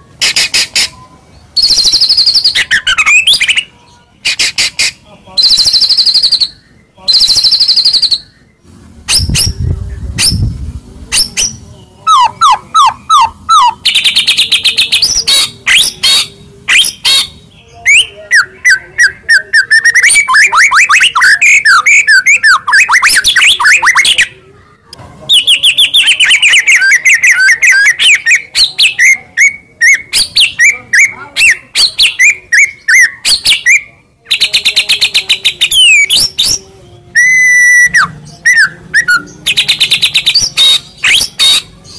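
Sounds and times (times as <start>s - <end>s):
songbird trills and whistles: 0.2s - 3.7s, 35.4s - 41.9s.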